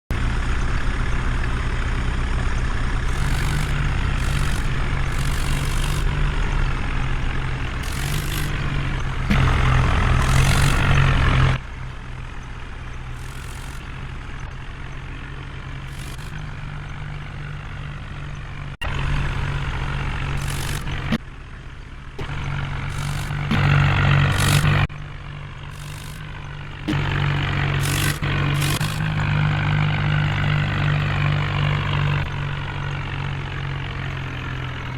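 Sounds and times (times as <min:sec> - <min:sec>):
heavy diesel engine running: 0:00.1 - 0:34.9
short higher-pitched bursts: 0:03.1 - 0:07.0, 0:07.7 - 0:11.5, 0:13.2 - 0:14.2, 0:15.9 - 0:16.6, 0:20.4 - 0:21.2, 0:22.9 - 0:24.9, 0:25.7 - 0:26.6, 0:27.8 - 0:29.2.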